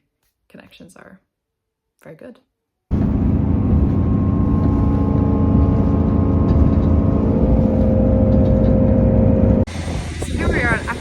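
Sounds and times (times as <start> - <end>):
diesel train engine drone: 2.9 - 11.0.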